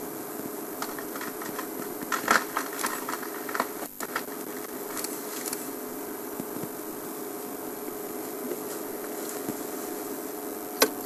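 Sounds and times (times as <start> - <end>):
wood cracking and snapping: 0.8 - 5.6.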